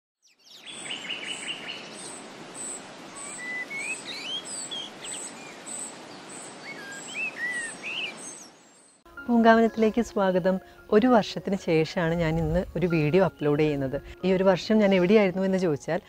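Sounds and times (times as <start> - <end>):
birds chirping and whistling: 0.2 - 9.0.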